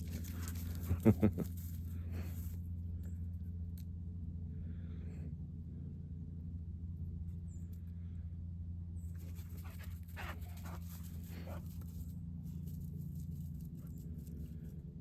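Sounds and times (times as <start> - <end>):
steady low hum: 0.0 - 15.0
dog panting: 9.2 - 11.9.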